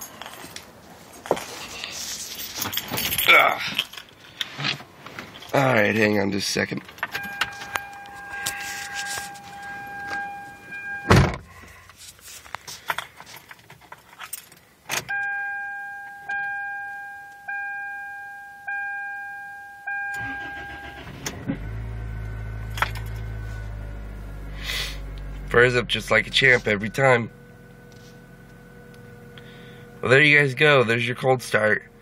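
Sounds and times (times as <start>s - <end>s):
car engine cranking and idling: 0.0s - 15.2s, 20.0s - 32.0s
car keys jangling: 0.0s - 16.6s, 22.7s - 23.3s
car warning chime dinging: 5.6s - 6.4s, 7.1s - 11.2s, 15.0s - 21.3s, 26.4s - 27.4s
loud thump: 11.0s - 11.5s.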